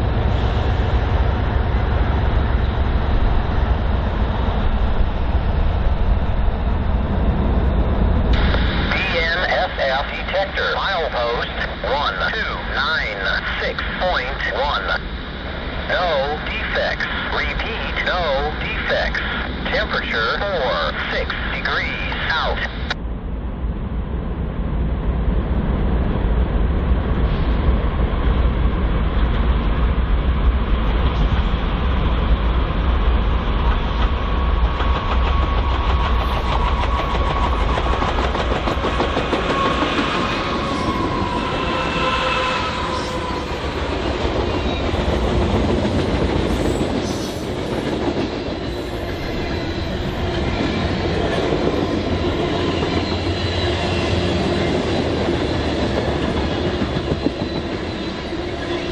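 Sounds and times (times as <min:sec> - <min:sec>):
freight train cars rumbling past: 0:00.0 - 0:58.9
faint high squeal: 0:39.6 - 0:43.6.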